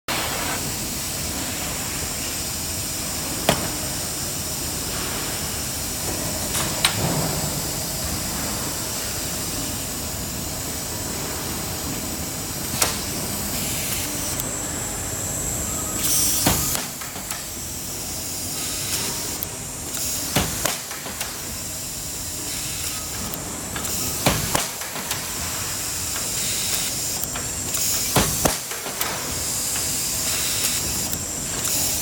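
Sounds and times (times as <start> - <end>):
welding machine sharp cracks: 18.3 - 32.0.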